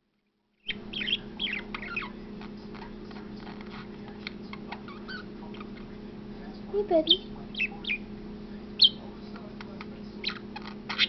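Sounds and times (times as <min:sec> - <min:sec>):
budgerigar chirping: 0:00.6 - 0:05.9, 0:07.0 - 0:08.1, 0:08.8 - 0:09.1, 0:10.2 - 0:11.0
steady low hum: 0:00.6 - 0:11.0.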